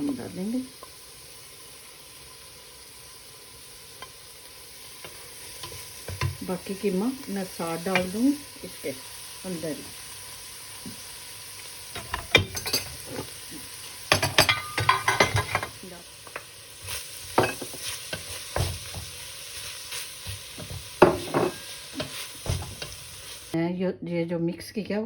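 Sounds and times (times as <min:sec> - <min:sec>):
spoon scraping a pan: 0:03.9 - 0:09.4, 0:11.9 - 0:23.6.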